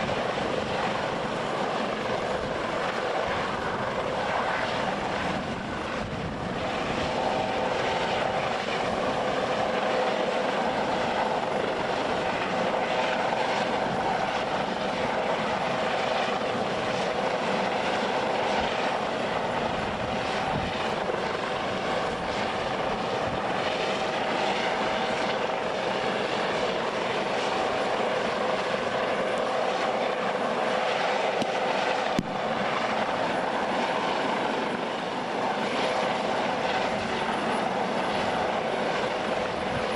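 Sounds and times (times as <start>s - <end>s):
aircraft engine running: 0.0s - 39.9s.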